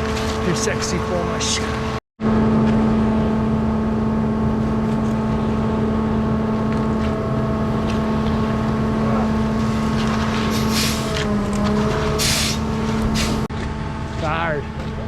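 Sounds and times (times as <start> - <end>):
diesel engine drone: 0.0 - 15.0.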